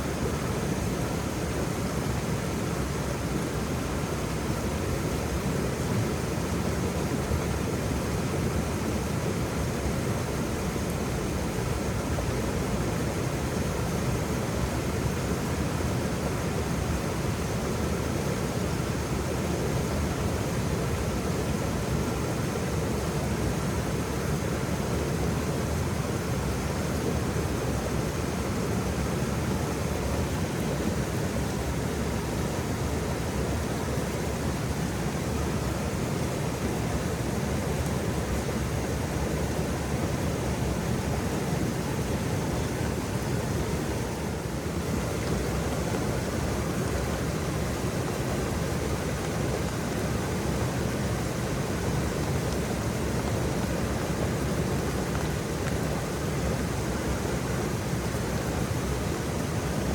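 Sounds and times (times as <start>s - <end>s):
waterfall rushing: 25.4s - 59.9s.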